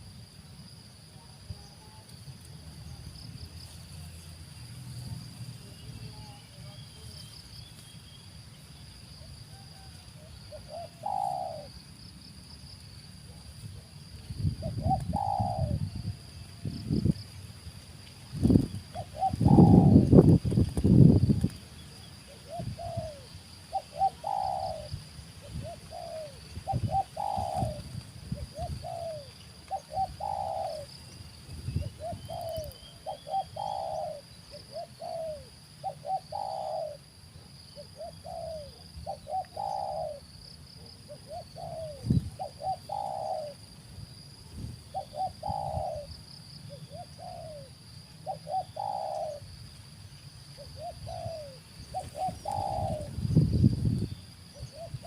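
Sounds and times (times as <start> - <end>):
dove cooing: 9.2 - 11.8, 14.5 - 16.2, 18.9 - 20.3, 22.2 - 30.9, 31.8 - 37.1, 37.8 - 43.7, 44.9 - 49.5, 50.6 - 53.5, 54.5 - 55.0.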